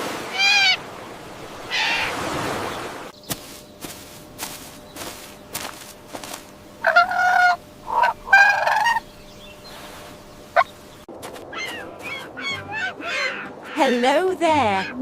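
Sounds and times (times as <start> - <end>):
farm fowl calling: 1.7 - 2.3, 6.2 - 9.1, 10.6 - 10.8, 11.5 - 15.0.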